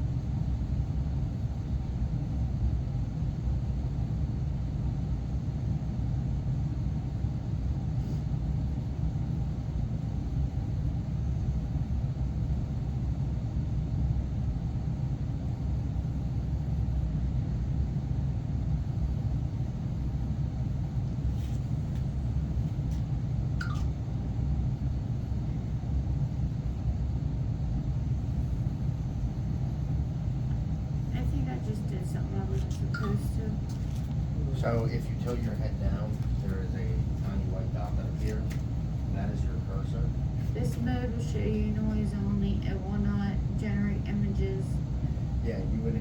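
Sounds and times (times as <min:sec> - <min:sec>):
machinery rumbling: 0:28.2 - 0:46.0.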